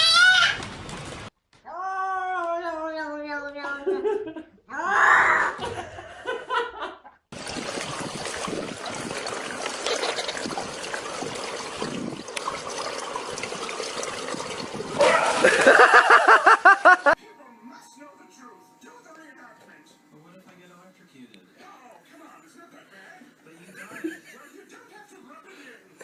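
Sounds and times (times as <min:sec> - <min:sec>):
rapid voice-like cries: 0:04.7 - 0:05.6
running water rushing: 0:07.4 - 0:17.2.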